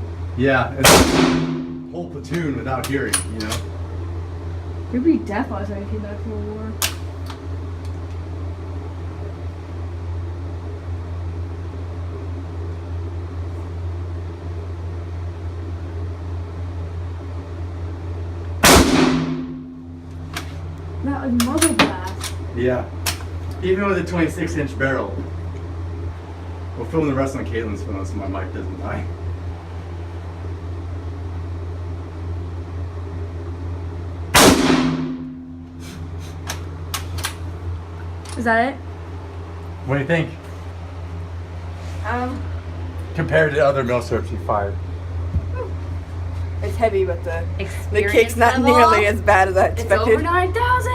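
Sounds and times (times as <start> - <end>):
ventilation hum: 0.0 - 50.9
rifle shot with echo: 0.8 - 1.9, 18.6 - 19.7, 34.4 - 35.4.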